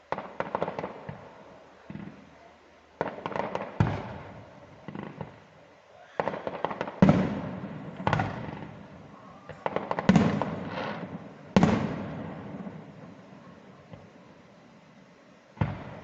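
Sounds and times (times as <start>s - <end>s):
firework crackling: 0.0s - 16.0s
firework shells bursting: 6.1s - 14.6s.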